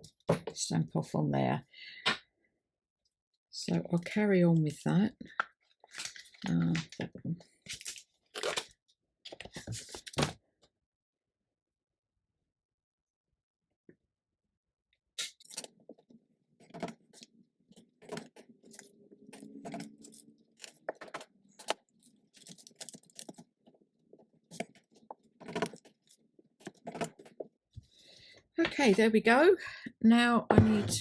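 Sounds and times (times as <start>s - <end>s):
handling noise: 16.6s - 27.6s.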